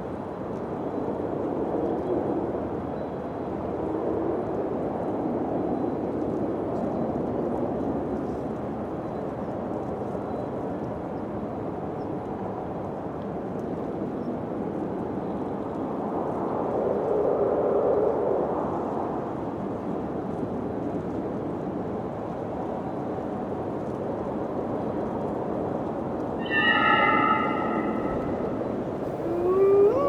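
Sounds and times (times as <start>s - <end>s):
wind blowing: 26.4s - 30.0s.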